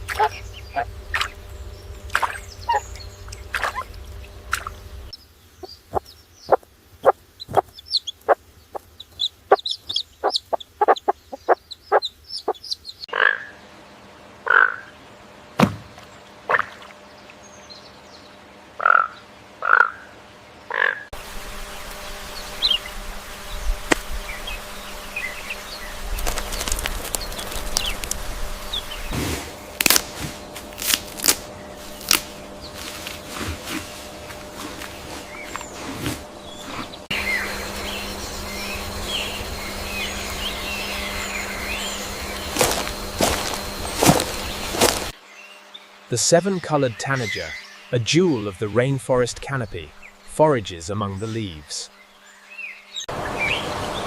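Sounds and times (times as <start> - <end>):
chickens clucking: 0.0 - 1.5, 5.6 - 13.1.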